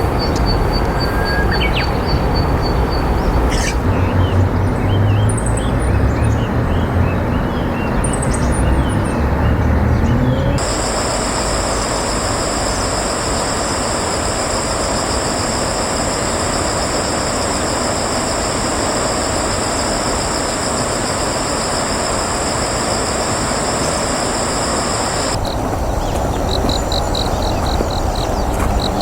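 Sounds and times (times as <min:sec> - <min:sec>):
outdoor background noise: 0:00.0 - 0:29.0
high-pitched buzzing drone: 0:10.6 - 0:29.0.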